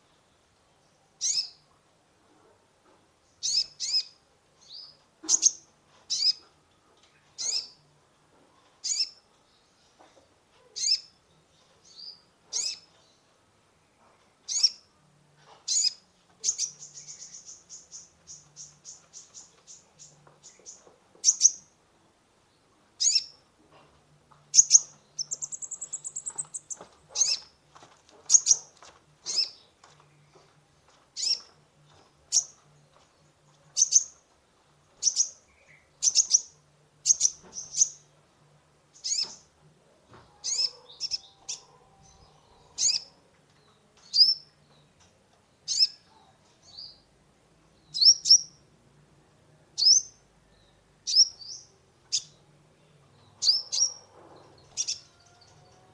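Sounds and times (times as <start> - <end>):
bird chirping: 3.4 - 6.5, 7.1 - 7.8, 15.7 - 21.7, 24.5 - 27.5, 33.7 - 34.2, 35.0 - 38.1, 38.9 - 39.5, 40.4 - 47.1, 47.8 - 48.7, 49.8 - 55.9
bird trill: 24.6 - 27.4, 53.4 - 54.1, 54.7 - 55.6.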